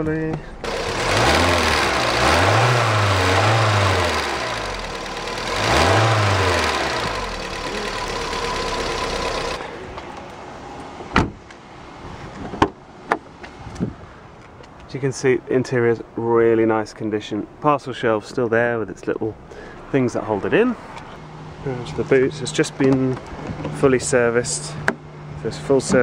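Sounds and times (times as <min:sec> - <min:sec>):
car mechanical noise: 0:00.0 - 0:11.7.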